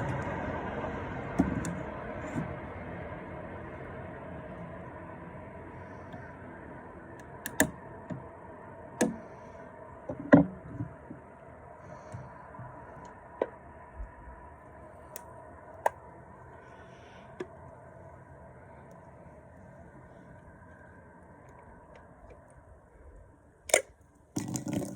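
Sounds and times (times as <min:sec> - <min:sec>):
low hum: 0:00.0 - 0:24.9
sharp knocks and clicks: 0:09.0 - 0:09.2.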